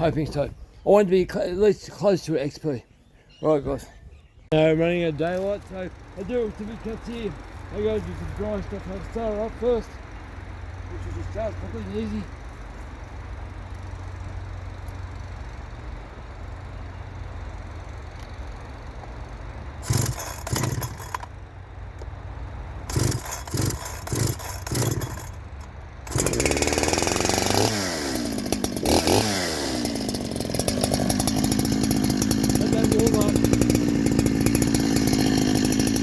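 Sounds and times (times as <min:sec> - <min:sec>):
chainsaw engine revving: 0:19.8 - 0:21.3, 0:22.8 - 0:25.4, 0:26.0 - 0:36.0
chainsaw pull-start bursts: 0:19.8 - 0:21.3, 0:22.8 - 0:36.0.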